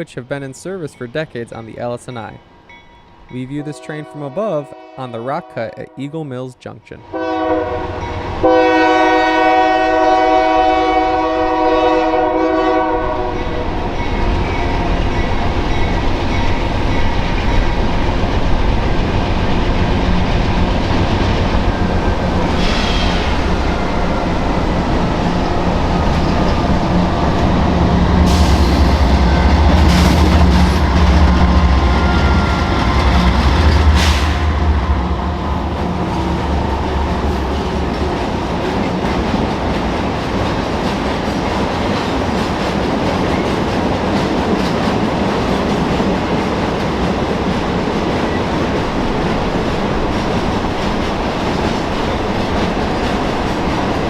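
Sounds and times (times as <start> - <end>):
train wagons rumbling and clacking: 0.0 - 5.8, 7.1 - 54.0
diesel locomotive engines droning: 7.1 - 42.7.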